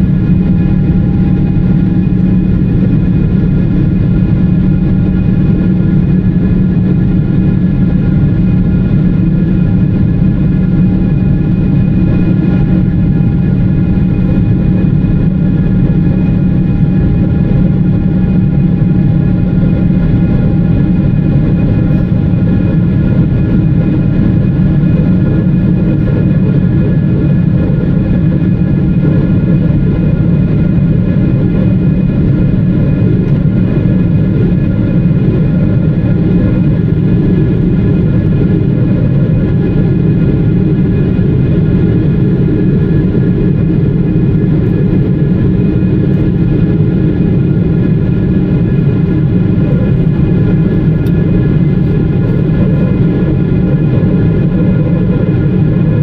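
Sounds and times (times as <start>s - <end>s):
airplane cabin engine rush: 0.0s - 56.0s
steady whining tones: 0.0s - 56.0s.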